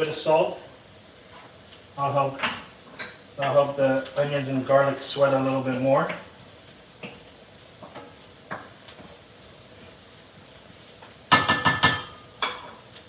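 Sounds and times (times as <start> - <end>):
food sizzling in a pan: 0.0 - 13.0
kitchenware clattering: 2.4 - 3.3, 11.3 - 12.8.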